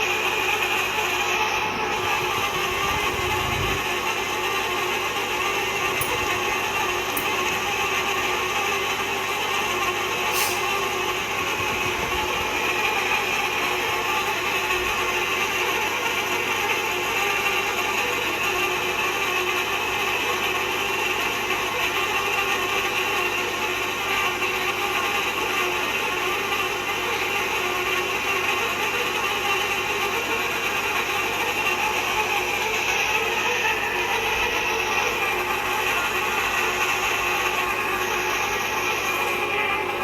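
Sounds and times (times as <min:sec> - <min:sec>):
pipe cutter grinding and ratcheting: 0:05.1 - 0:08.5, 0:10.2 - 0:10.9.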